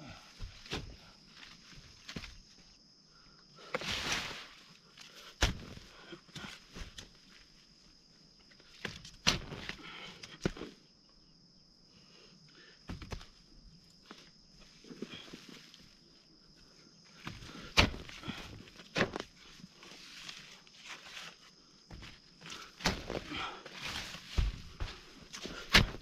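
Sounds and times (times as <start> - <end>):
hoe scraping soil: 3.8 - 4.6, 22.6 - 26.0
hoe striking soil: 5.4 - 5.8, 8.9 - 9.8, 17.2 - 19.3, 22.8 - 26.0.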